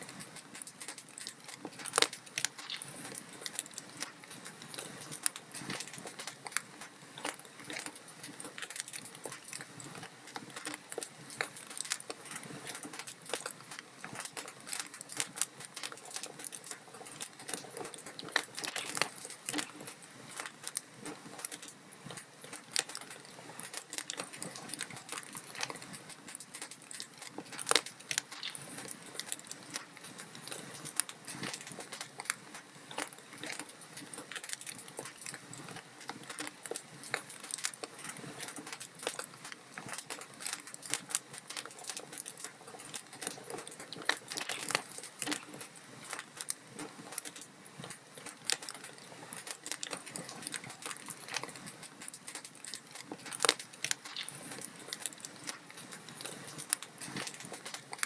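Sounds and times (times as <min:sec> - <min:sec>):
log fire crackling: 0:00.0 - 0:58.0.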